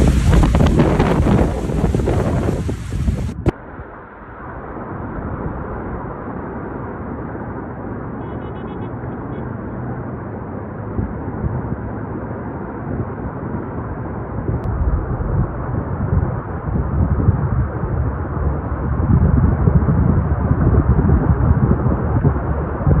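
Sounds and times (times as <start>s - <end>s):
low rumble: 0.0s - 7.2s, 13.9s - 23.0s
rushing storm noise: 0.0s - 8.2s, 8.8s - 23.0s.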